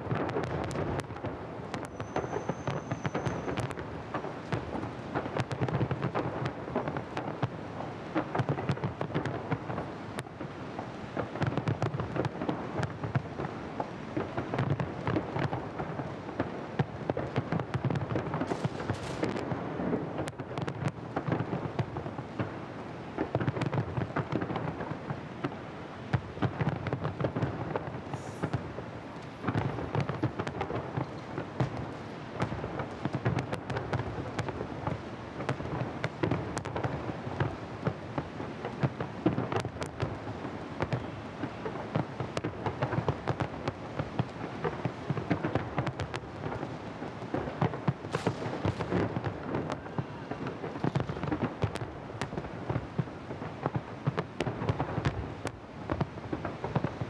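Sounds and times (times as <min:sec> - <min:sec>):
firework bangs and crackles: 0:00.0 - 0:57.0
deep firework booms: 0:14.2 - 0:22.6, 0:47.3 - 0:53.0.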